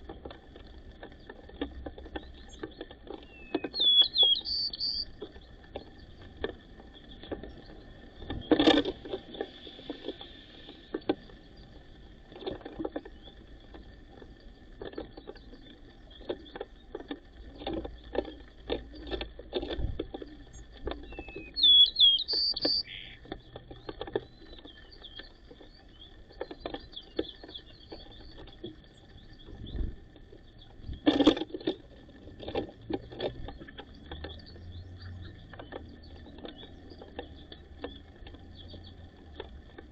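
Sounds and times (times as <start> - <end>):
bird chirping: 2.1 - 6.2, 20.4 - 31.0, 33.4 - 39.1.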